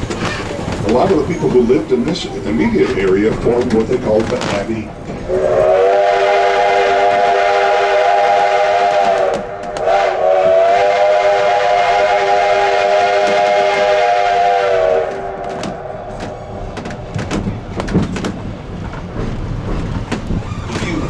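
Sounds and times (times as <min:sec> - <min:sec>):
steam locomotive whistle blasts: 0:05.3 - 0:16.0.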